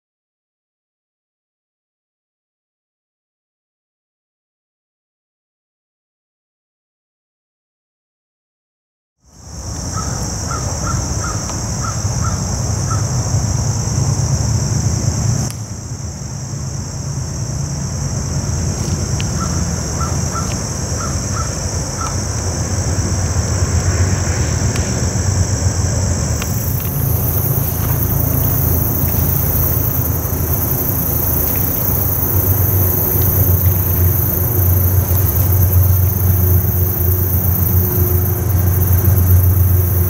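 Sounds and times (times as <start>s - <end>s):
high insect drone: 9.2s - 40.0s
low rumble: 26.4s - 40.0s.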